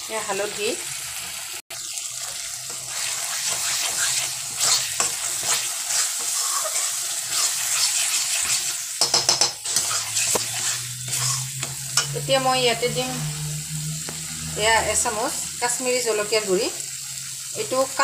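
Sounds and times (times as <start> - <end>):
spice paste sizzling in oil: 0.0 - 18.0
metal spatula scraping pan: 2.2 - 15.5.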